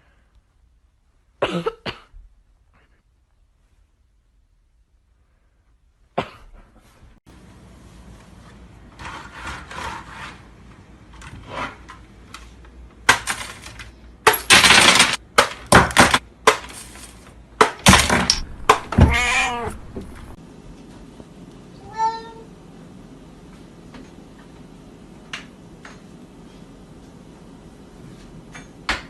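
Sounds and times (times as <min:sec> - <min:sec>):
knocks and rustles: 0:13.1 - 0:20.4
loud clattering crashes: 0:13.1 - 0:20.4.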